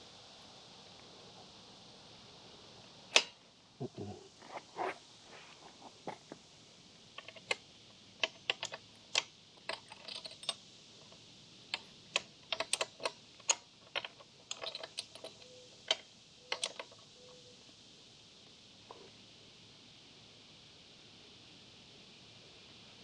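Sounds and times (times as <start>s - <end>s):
wrenches clicking on metal nuts: 11.8s - 16.9s.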